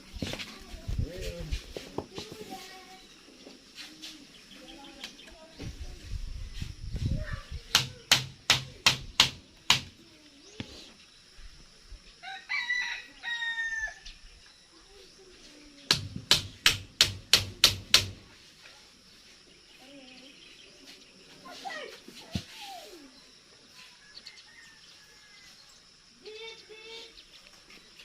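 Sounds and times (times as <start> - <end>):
rooster crowing: 12.2 - 14.1, 24.0 - 25.7.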